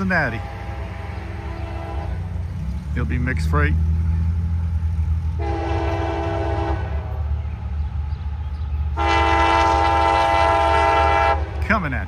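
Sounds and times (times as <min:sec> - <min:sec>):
train horn blasts: 0:00.0 - 0:02.4, 0:05.4 - 0:07.2, 0:09.0 - 0:11.6
train rumble: 0:00.0 - 0:12.0.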